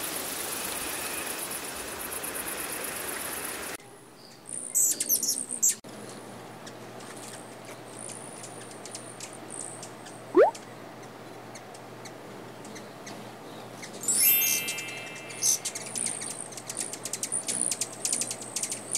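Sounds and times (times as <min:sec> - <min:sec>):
hummingbird chirping: 0:04.2 - 0:05.8, 0:08.0 - 0:10.6, 0:12.6 - 0:18.9
rising whistle-like sweep: 0:14.2 - 0:16.0.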